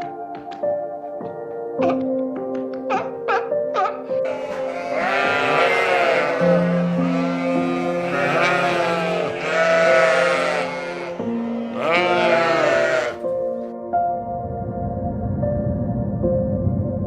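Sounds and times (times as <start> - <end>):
background music with held notes: 0.0 - 17.0
animal bleating: 4.2 - 13.3.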